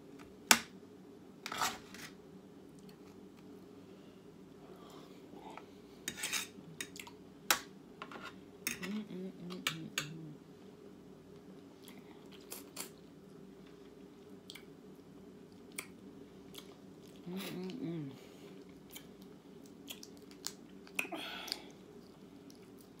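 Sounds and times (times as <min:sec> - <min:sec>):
low background hum: 0:00.0 - 0:23.0
low hum of a voice: 0:04.5 - 0:06.9, 0:08.6 - 0:10.8, 0:17.1 - 0:18.6, 0:21.0 - 0:21.9.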